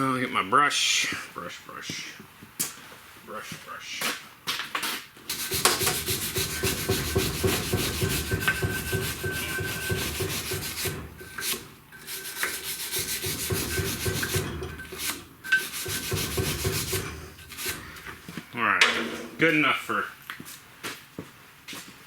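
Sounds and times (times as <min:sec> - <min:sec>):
brush scrubbing: 0:05.3 - 0:18.4.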